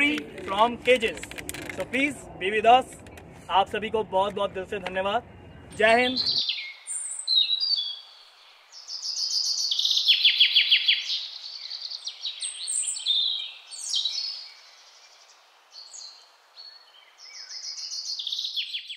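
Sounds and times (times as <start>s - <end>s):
small birds chirping: 4.8s - 18.9s.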